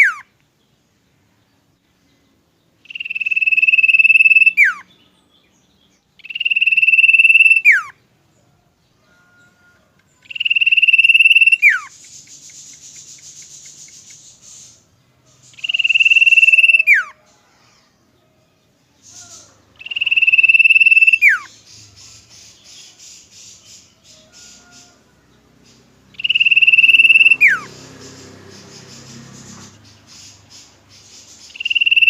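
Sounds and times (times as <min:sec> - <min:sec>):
high buzzing bird trills: 0:00.0 - 0:00.3, 0:02.8 - 0:05.0, 0:06.2 - 0:08.0, 0:09.2 - 0:17.4, 0:19.0 - 0:32.0
bird long whistles: 0:02.9 - 0:04.8, 0:06.2 - 0:07.9, 0:10.3 - 0:14.8, 0:15.5 - 0:17.2, 0:19.1 - 0:21.5, 0:26.2 - 0:27.7, 0:31.5 - 0:32.0.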